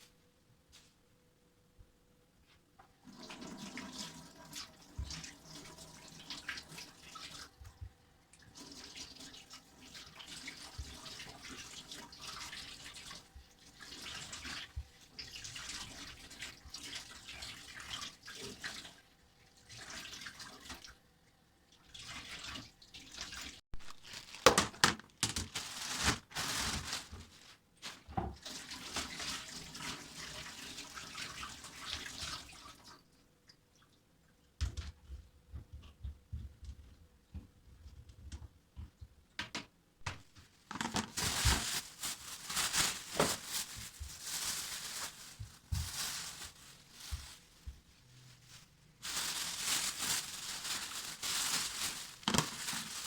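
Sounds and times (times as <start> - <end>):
tap water running into sink: 2.8 - 19.0.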